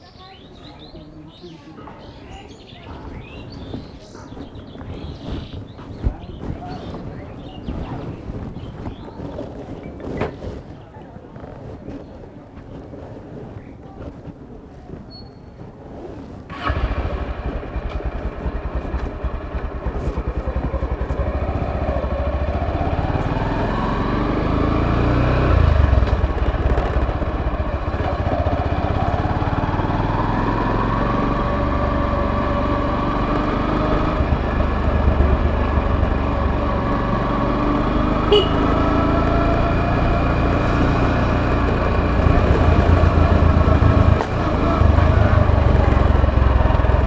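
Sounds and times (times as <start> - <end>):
motorcycle engine accelerating: 16.5 - 47.0.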